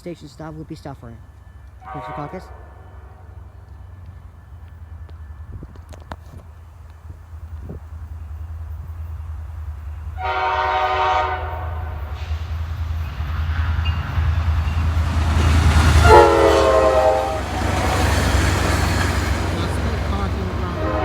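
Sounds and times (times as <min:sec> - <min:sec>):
train engine and rail rumble: 0:00.0 - 0:21.0
train air horn blasts: 0:01.8 - 0:03.5, 0:10.2 - 0:12.3, 0:15.8 - 0:18.1, 0:20.7 - 0:21.0.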